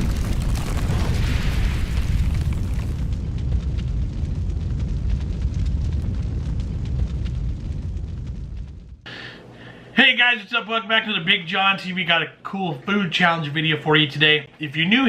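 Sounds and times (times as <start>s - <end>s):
deep rumbling boom: 0.0s - 9.1s
hissing crackle: 0.0s - 9.4s.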